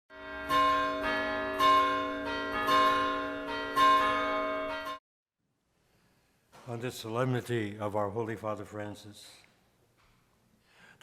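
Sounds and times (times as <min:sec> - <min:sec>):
bells ringing: 0:00.1 - 0:05.0.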